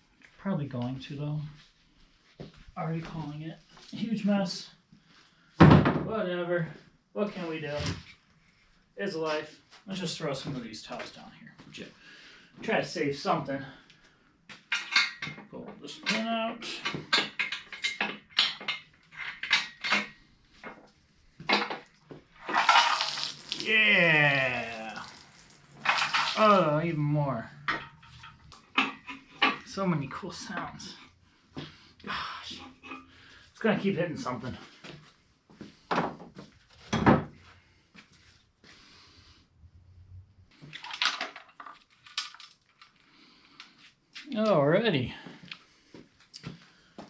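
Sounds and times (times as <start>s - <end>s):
water pouring out: 22.4s - 26.9s.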